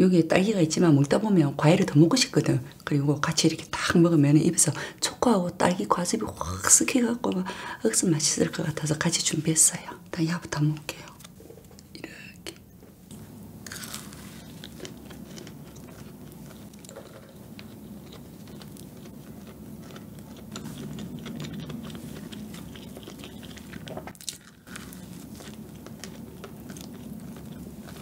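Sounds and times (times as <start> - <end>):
moist chewing with mouth clicks: 13.8 - 28.0.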